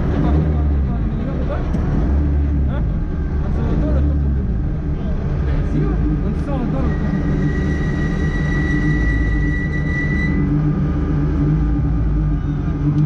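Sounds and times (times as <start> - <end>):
rally car engine running: 0.0 - 13.0
high steady tone: 6.0 - 13.0.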